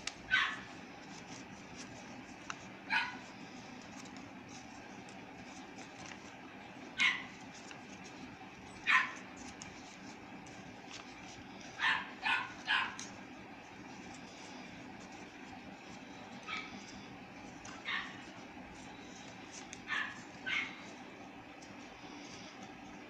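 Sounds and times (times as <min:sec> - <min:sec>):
dog barking: 0:00.3 - 0:00.7, 0:02.9 - 0:03.2, 0:07.0 - 0:07.3, 0:08.9 - 0:09.2, 0:11.8 - 0:13.0, 0:17.9 - 0:18.2, 0:19.9 - 0:20.8.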